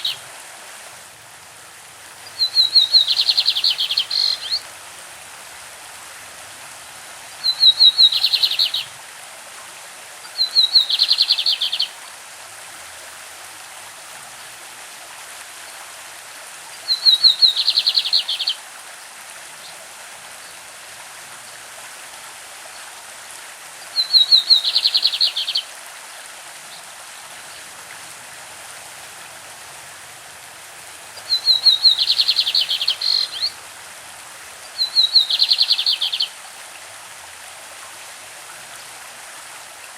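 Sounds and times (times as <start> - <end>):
stream rushing: 0.0 - 39.9
bird singing rapid notes: 2.3 - 4.6, 7.4 - 8.9, 16.9 - 18.6, 24.0 - 25.6, 31.2 - 33.5, 34.8 - 36.3.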